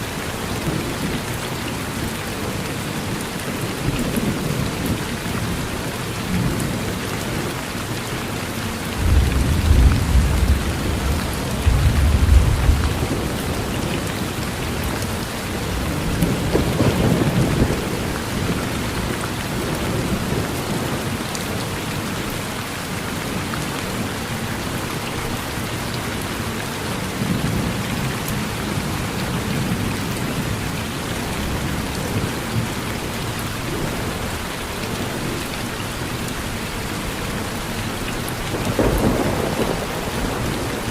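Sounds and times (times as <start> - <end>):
steady rain: 0.0 - 40.9
thunder rumbling: 9.0 - 21.2, 38.4 - 40.9.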